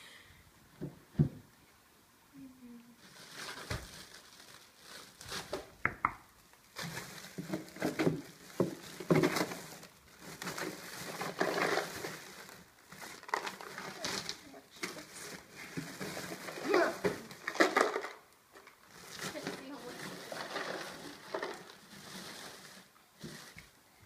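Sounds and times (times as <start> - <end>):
rustling and crinkling: 2.9 - 24.0
sharp clicks and knocks: 5.8 - 6.2.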